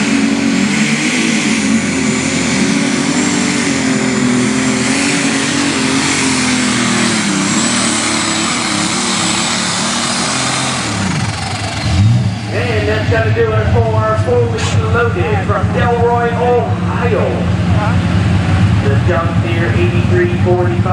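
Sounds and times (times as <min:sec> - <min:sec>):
tractor engine at full power: 0:00.0 - 0:20.9.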